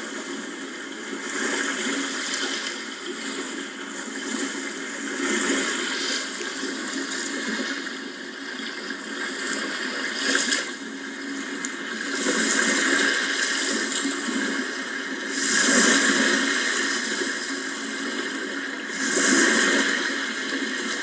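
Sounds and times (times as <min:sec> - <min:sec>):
sea waves washing in: 0:09.3 - 0:21.0.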